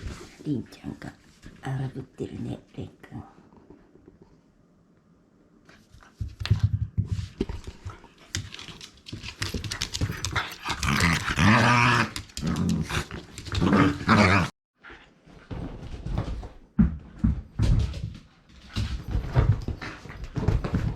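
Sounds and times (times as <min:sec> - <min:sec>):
knocks and scuffles with ball: 0:05.9 - 0:10.6
dog play-growling: 0:07.7 - 0:14.5.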